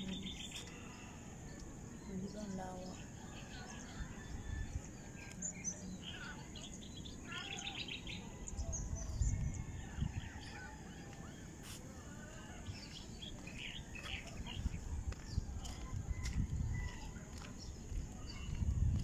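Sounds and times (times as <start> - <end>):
small birds chirping: 0.0 - 19.0
wind gusts on microphone: 8.1 - 11.1, 12.6 - 19.0.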